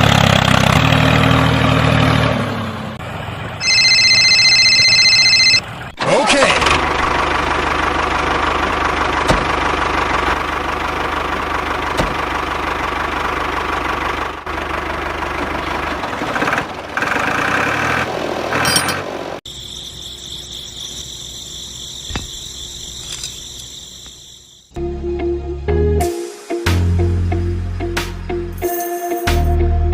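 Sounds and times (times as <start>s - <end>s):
tractor engine running: 0.0s - 24.7s
background music: 24.8s - 29.9s.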